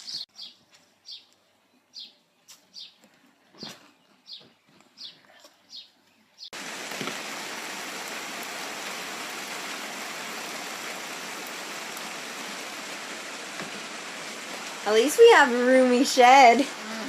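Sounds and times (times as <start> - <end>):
heavy rain pouring: 6.6 - 17.0.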